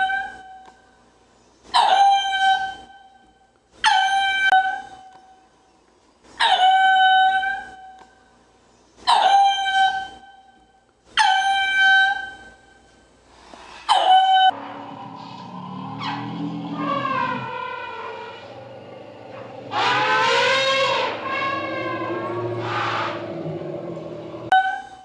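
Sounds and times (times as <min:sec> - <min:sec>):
animal calling: 0:14.5 - 0:24.5.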